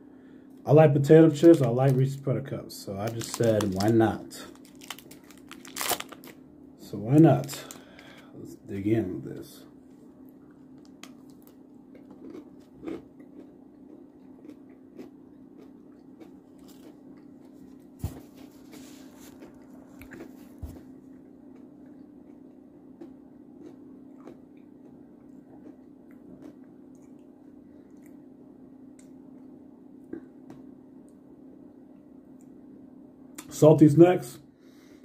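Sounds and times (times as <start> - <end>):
steady low hum: 0.0 - 35.0
person chewing crunchy food: 3.1 - 6.4, 10.4 - 28.3.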